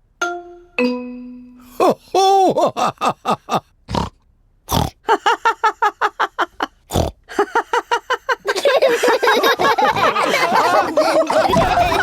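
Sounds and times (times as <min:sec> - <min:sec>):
cartoon pigs snorting and grunting: 0:03.9 - 0:05.0, 0:06.9 - 0:07.3, 0:09.8 - 0:12.0
cartoon laughter: 0:07.3 - 0:12.0.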